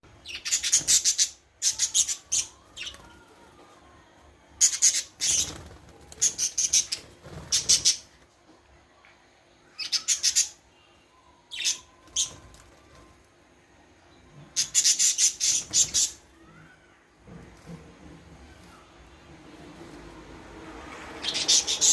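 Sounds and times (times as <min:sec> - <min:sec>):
small parrots chirping: 0:00.2 - 0:02.6, 0:09.7 - 0:10.6, 0:21.2 - 0:21.9.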